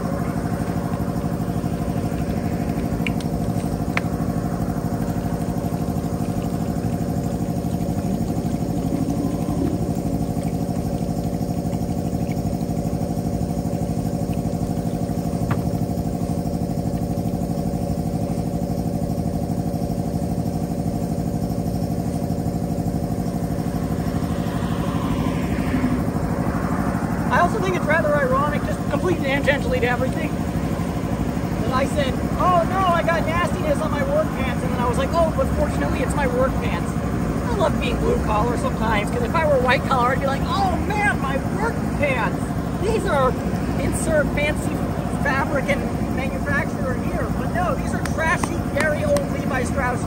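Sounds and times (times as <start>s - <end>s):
steady motor hum: 0.0s - 50.0s
sharp clicks: 2.1s - 12.5s.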